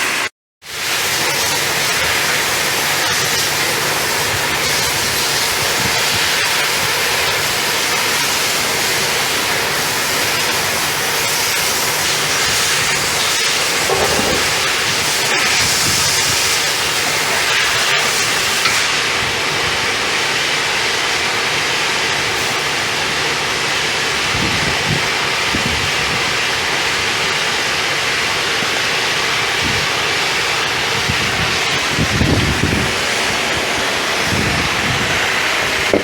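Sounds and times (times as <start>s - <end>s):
pressure washer spraying water: 0.0s - 19.5s, 22.2s - 22.7s.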